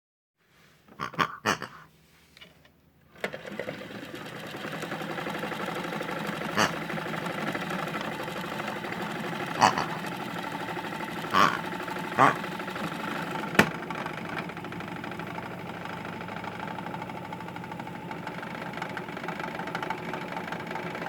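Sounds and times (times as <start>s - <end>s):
small electric motor whirring: 4.6s - 21.0s.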